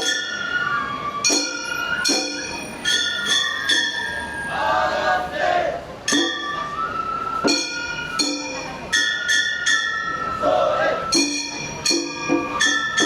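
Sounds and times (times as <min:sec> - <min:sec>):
high flute melody: 0:00.0 - 0:13.0
small metallic gongs struck: 0:06.1 - 0:06.6, 0:11.2 - 0:13.0.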